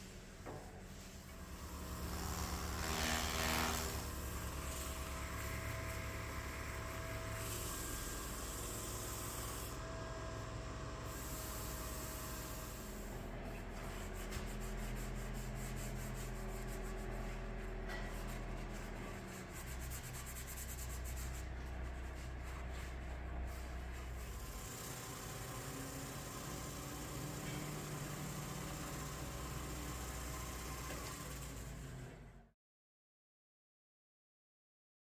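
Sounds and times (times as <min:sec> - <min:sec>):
lathe motor hum: 0:01.3 - 0:13.4, 0:21.8 - 0:32.3.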